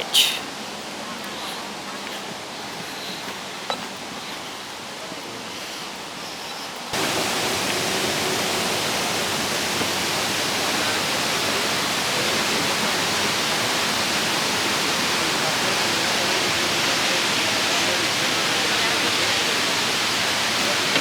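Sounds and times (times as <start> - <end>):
waterfall roaring: 6.9 - 21.0.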